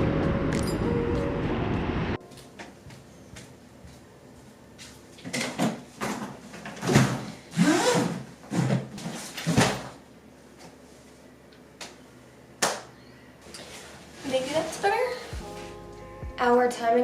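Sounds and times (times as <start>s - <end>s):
handling knocks and scrapes: 13.5s - 15.8s.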